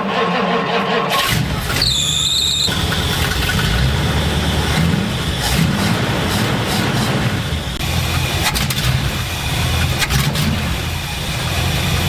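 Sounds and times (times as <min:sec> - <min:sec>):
high-pitched squeal: 0:00.0 - 0:08.4
car engine rumbling: 0:00.0 - 0:12.0.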